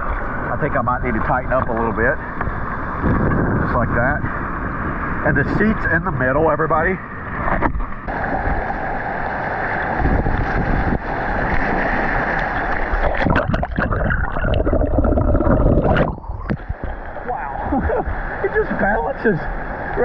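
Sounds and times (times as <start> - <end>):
wind rumbling on microphone: 0.0 - 20.0
paddle splashes: 7.4 - 20.0
rushing whitewater: 8.1 - 20.0.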